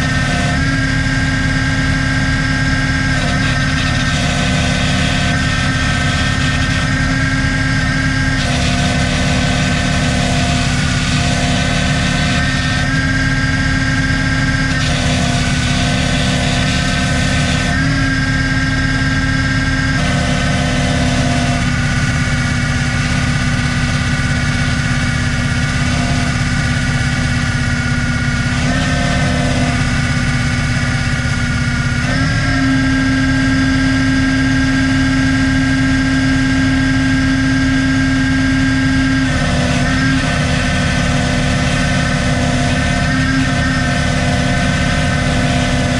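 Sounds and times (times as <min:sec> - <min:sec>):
engine running: 0:00.0 - 0:45.9.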